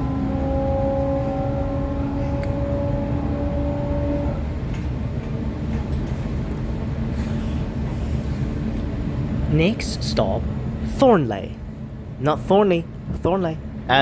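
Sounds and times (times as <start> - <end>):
electric motor whine: 0.0 - 4.8
train wheels rumbling on rail: 0.0 - 10.8.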